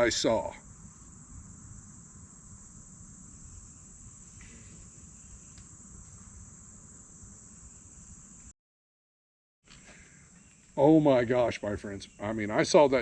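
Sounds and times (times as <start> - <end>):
crickets chirping: 0.0 - 8.5, 9.7 - 13.0.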